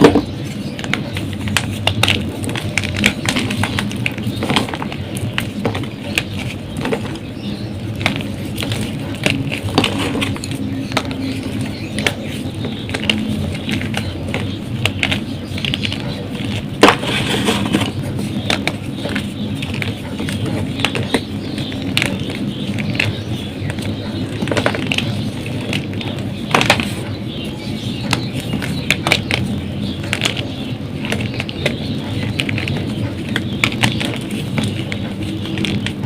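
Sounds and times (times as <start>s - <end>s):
chalk crunching and crackling: 0.0s - 36.0s.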